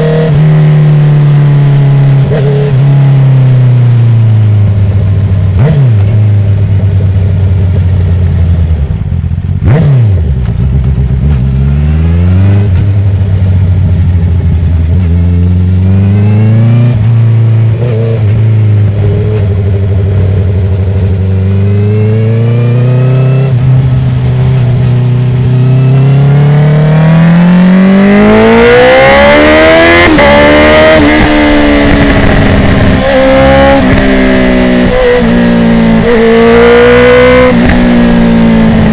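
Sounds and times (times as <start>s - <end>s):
motorcycle engine accelerating: 0.0s - 38.9s
wind rush: 28.3s - 38.9s.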